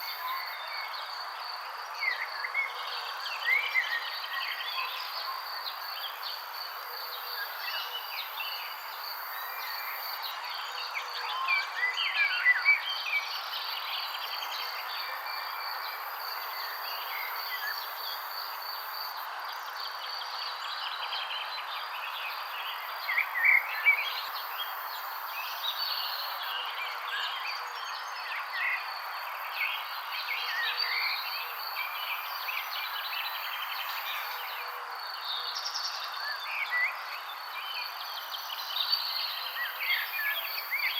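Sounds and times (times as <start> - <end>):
insects chorus: 0.0 - 40.9.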